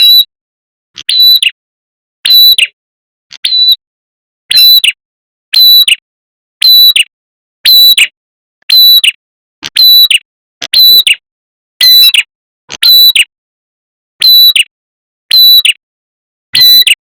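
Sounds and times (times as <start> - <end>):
high chirping bird call: 1.0 - 1.6, 5.6 - 5.9, 10.8 - 11.2.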